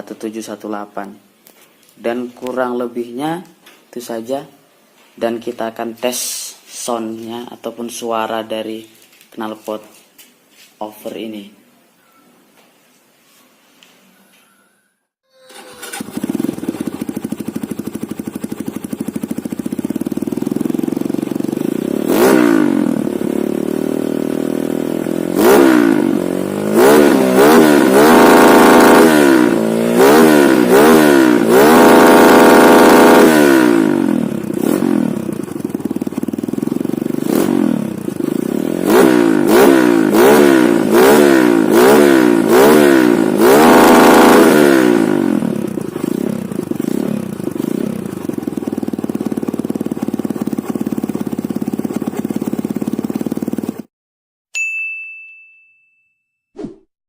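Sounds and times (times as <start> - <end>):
motorcycle engine idling and revving: 15.5 - 53.9.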